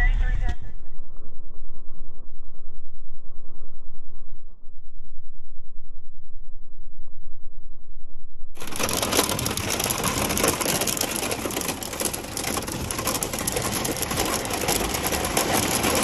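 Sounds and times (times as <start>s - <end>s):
muffled low sound: 0.0s - 8.7s
hail clattering on hard surfaces: 8.6s - 16.0s.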